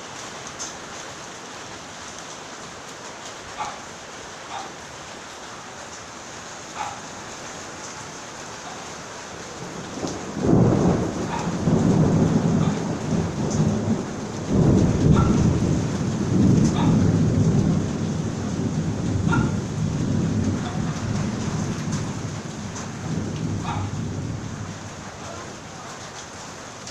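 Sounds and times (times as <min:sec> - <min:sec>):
steady rain falling: 0:00.0 - 0:26.9
thunder rumbling: 0:09.4 - 0:26.9.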